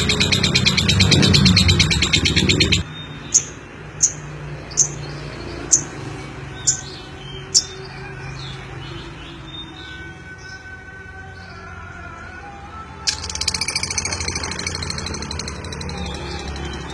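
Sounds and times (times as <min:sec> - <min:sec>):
rapidly pulsing sound: 0:00.0 - 0:02.8, 0:13.1 - 0:16.9
lovebird chirping: 0:00.0 - 0:04.2, 0:13.1 - 0:16.9.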